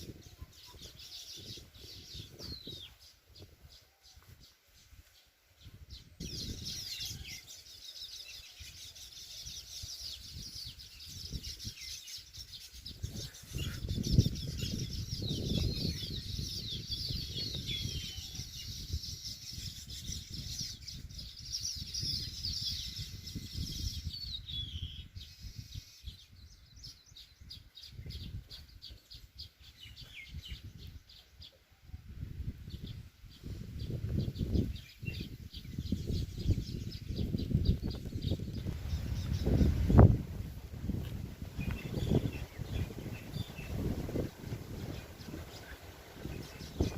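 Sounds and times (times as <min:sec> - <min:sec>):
birds chattering: 0:08.0 - 0:18.5.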